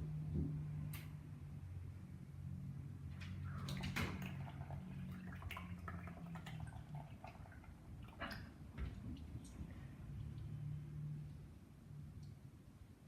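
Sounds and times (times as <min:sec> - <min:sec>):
wet drips: 0:03.3 - 0:10.7.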